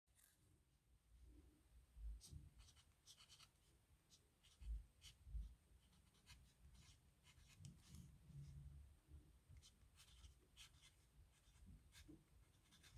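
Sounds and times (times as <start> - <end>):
pen scratching on paper: 9.6 - 12.9.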